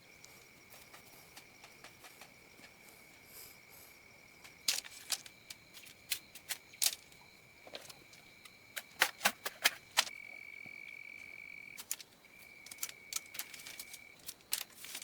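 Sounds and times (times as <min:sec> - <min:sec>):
sharp irregular clicks and knocks: 0:11.8 - 0:15.0.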